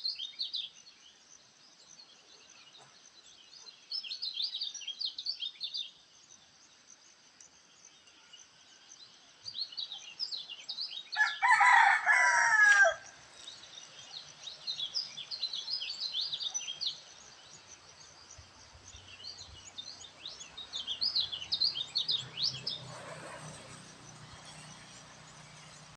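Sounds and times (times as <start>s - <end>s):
small songbirds chirping: 0.0s - 25.9s
rooster crowing: 11.2s - 13.1s.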